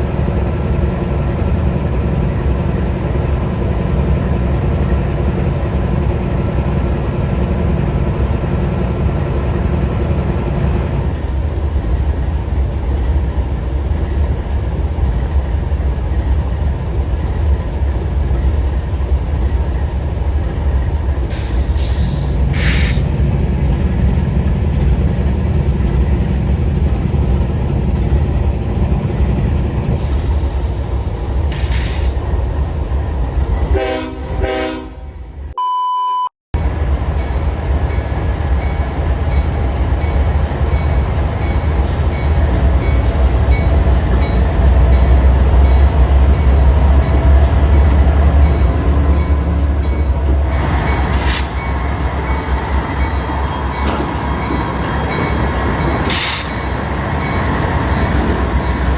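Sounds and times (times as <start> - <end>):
train rumbling past: 0.0 - 35.6, 36.6 - 58.9
train horn: 33.7 - 35.2
steady beep: 35.6 - 36.3.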